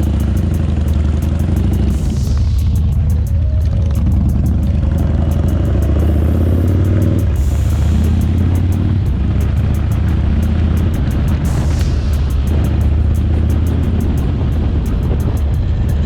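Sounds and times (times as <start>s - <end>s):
motorcycle engine droning: 0.0s - 16.0s.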